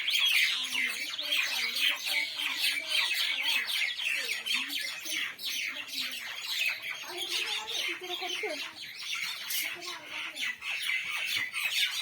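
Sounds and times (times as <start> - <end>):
mynah birds chattering: 0.0 - 12.0.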